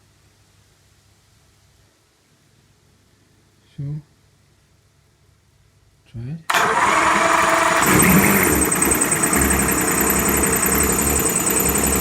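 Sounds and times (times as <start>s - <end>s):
outboard motor idling: 6.5s - 12.0s
fast high-pitched ticking: 7.8s - 12.0s.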